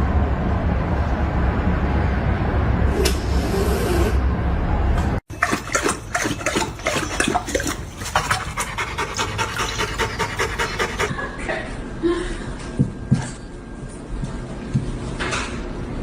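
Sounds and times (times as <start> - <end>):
dog panting: 5.4 - 11.1.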